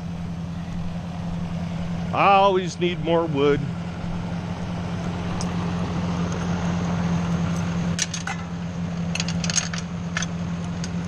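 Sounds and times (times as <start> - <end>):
engine idling: 0.0 - 11.0
metallic clinks and rattles: 9.1 - 10.3.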